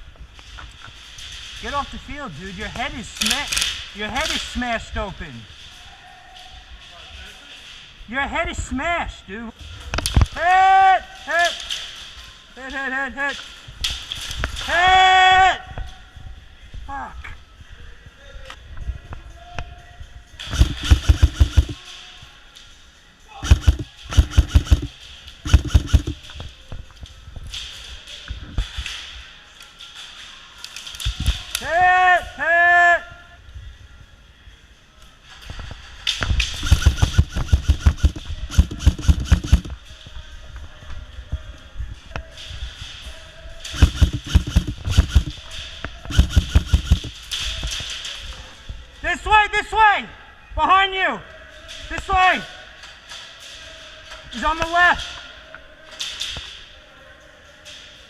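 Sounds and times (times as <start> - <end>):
airsoft rifle firing full auto: 20.5 - 21.8, 23.4 - 26.2, 36.6 - 39.7, 43.8 - 45.4, 46.1 - 47.2
rapid sharp knocks: 20.5 - 21.8, 23.4 - 24.9, 25.5 - 26.2, 36.6 - 39.7, 43.8 - 45.4, 46.1 - 47.2.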